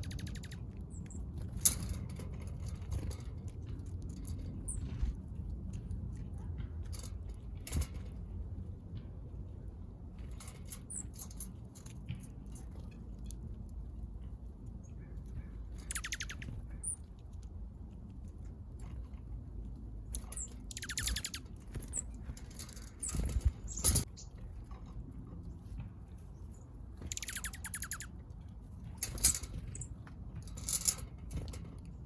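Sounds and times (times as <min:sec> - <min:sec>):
bird chattering runs: 0:00.0 - 0:01.2, 0:15.0 - 0:17.0, 0:20.2 - 0:24.3, 0:27.0 - 0:28.2
low steady rumble: 0:00.0 - 0:32.0
small birds chipping: 0:00.0 - 0:32.0.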